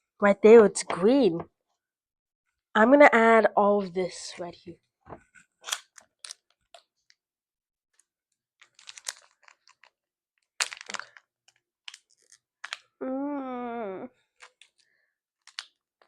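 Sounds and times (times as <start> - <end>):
plastic packaging clicks and crinkles: 8.6 - 10.0, 10.6 - 12.9, 14.4 - 15.8.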